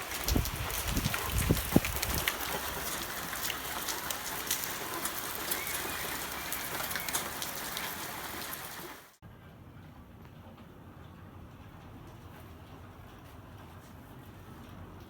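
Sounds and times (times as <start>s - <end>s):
hail and rain striking surfaces: 0.0s - 9.2s.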